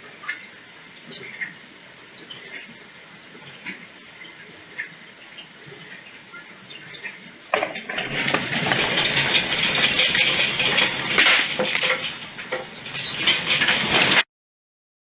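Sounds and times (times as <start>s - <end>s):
earthquake rattling and clattering: 7.5s - 14.3s.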